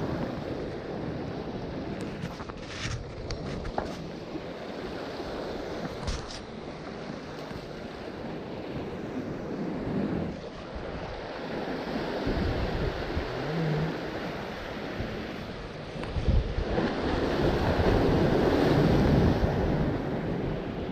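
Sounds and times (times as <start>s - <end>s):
ocean surf washing: 0.0s - 20.9s
wind buffeting the microphone: 0.0s - 20.9s.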